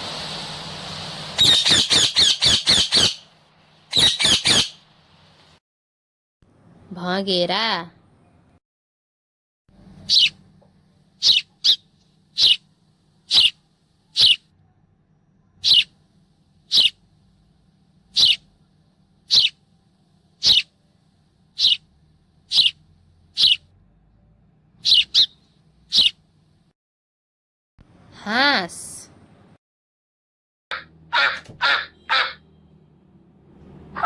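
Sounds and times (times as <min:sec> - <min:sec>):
sparrow chirping: 0:01.4 - 0:03.3, 0:03.9 - 0:04.8, 0:10.0 - 0:10.4, 0:11.2 - 0:12.6, 0:13.3 - 0:14.4, 0:15.6 - 0:15.9, 0:16.7 - 0:17.0, 0:18.1 - 0:18.5, 0:19.3 - 0:19.6, 0:20.4 - 0:20.8, 0:21.5 - 0:23.7, 0:24.8 - 0:26.2.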